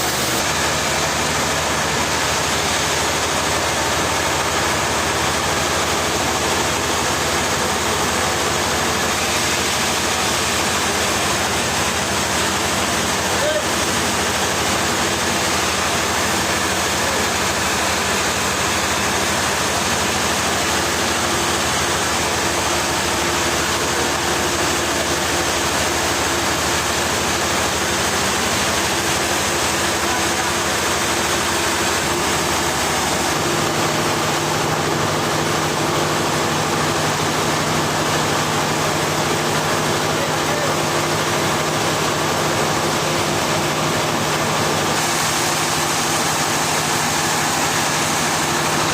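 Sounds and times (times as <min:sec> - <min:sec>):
sawmill machinery running: 0:00.0 - 0:48.9.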